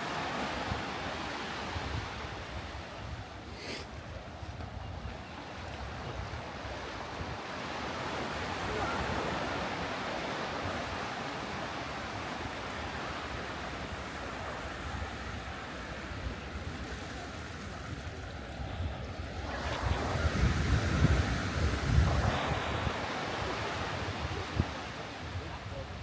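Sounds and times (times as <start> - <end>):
sea surf washing onto beach: 5.5 - 26.0
wind buffeting microphone: 16.4 - 26.0.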